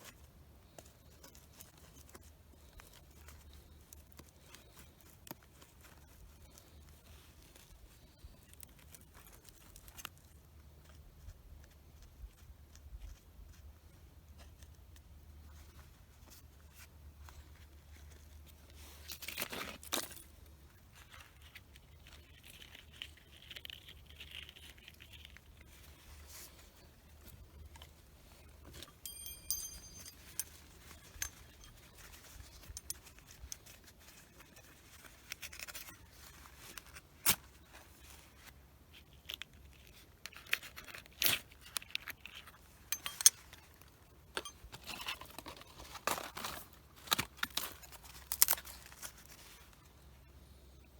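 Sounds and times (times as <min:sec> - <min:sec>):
bark and twigs tearing and scraping: 0:00.0 - 0:10.6, 0:18.0 - 0:44.0, 0:44.7 - 0:49.8
brief metallic ring: 0:28.9 - 0:31.7.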